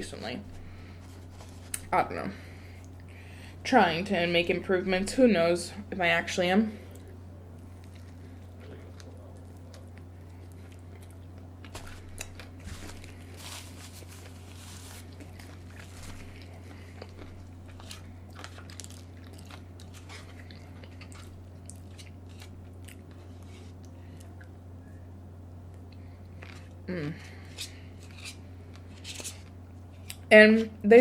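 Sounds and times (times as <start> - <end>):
low hum: 0.0 - 31.0
person chewing crunchy food: 6.9 - 24.6, 25.8 - 30.3.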